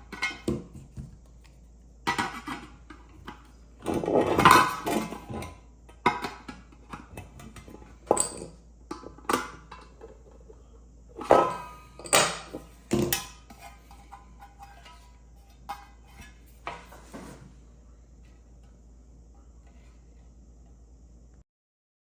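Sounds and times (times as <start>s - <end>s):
metal pot parts clattering: 11.2s - 17.1s.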